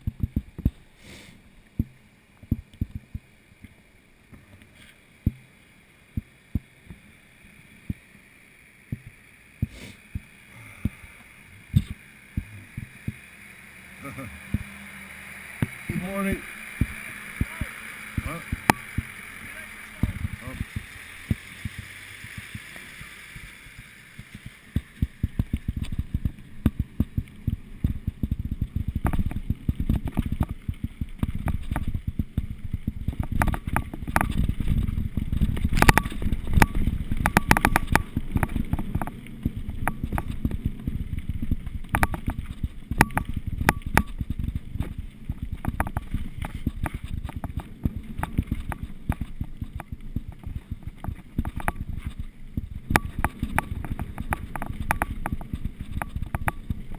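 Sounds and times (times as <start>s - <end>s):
mountain bike rolling downhill: 0.0s - 56.9s
bike rattling and clattering: 10.1s - 56.9s.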